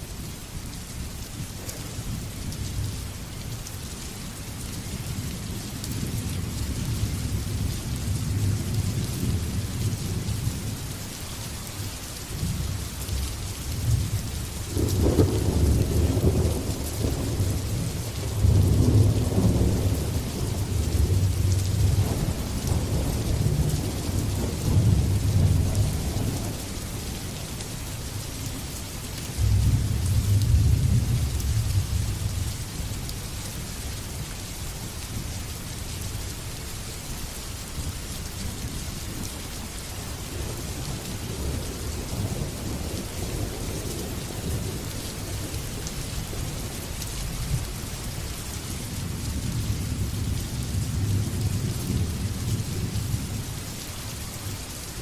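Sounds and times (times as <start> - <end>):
heavy rain: 0.0 - 55.0
rolling thunder: 14.7 - 26.6.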